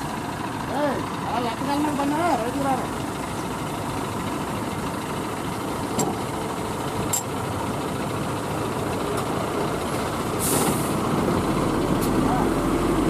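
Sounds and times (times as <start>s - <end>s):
truck diesel engine idling: 0.0s - 13.0s
short hiss: 10.4s - 11.0s.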